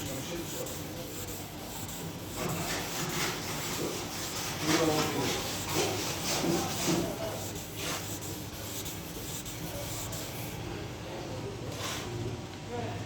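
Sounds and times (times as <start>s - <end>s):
sandpaper rubbing on car paint: 0.0s - 10.6s.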